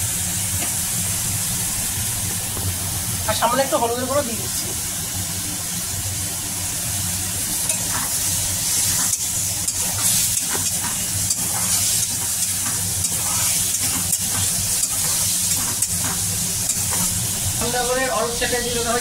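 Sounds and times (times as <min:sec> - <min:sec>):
fruit frying in hot oil: 0:00.0 - 0:19.0
spatula scraping a pan: 0:07.7 - 0:17.1.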